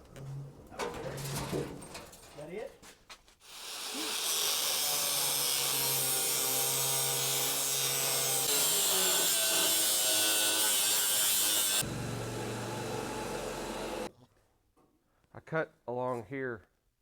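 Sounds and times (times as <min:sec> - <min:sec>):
power tool cutting sheet steel: 0:03.5 - 0:14.1.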